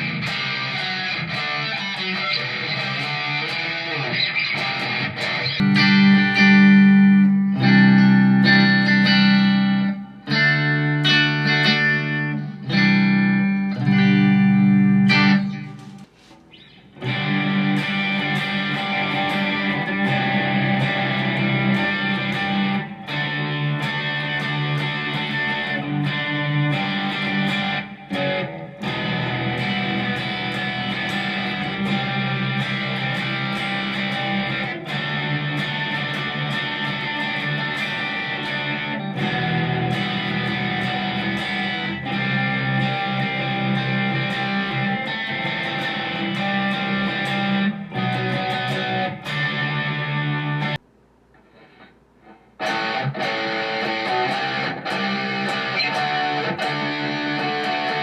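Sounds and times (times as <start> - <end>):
electric guitar strumming: 0.0 - 58.0.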